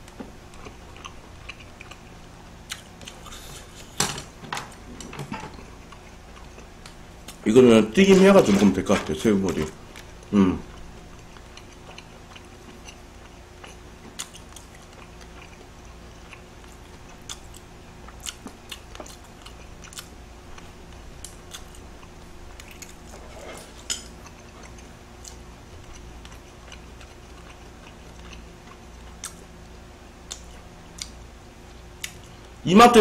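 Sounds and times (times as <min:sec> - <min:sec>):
chewing with mouth closed: 0:00.5 - 0:04.0, 0:09.9 - 0:31.2.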